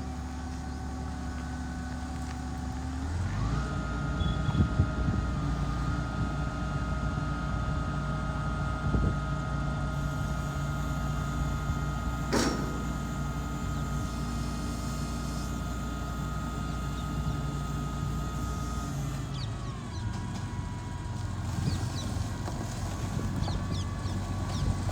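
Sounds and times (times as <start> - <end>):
diesel engine running: 0.0 - 24.9
short knock: 12.3 - 13.2.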